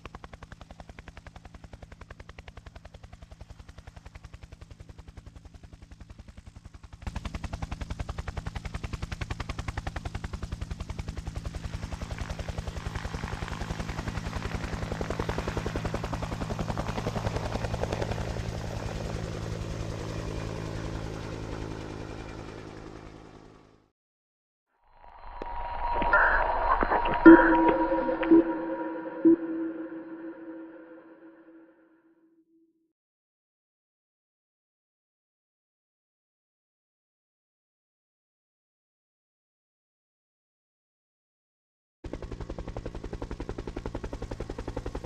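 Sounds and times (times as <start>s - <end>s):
helicopter engine drone: 0.0s - 23.8s, 42.1s - 45.0s.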